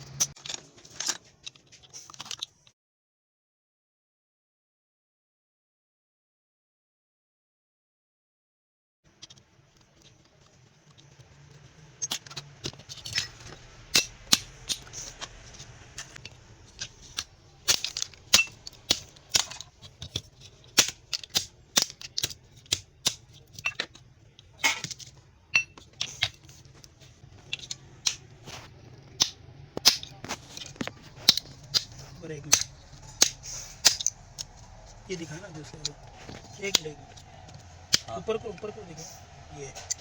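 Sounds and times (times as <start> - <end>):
low steady hum: 9.5 - 40.0
metallic tool clicks and knocks: 16.0 - 24.0, 29.2 - 34.8.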